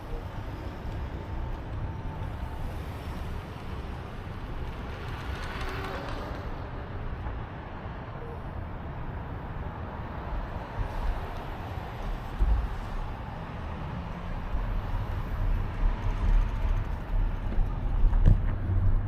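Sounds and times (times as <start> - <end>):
bicycle road noise: 0.0 - 19.0
wind rumble on microphone: 10.2 - 19.0.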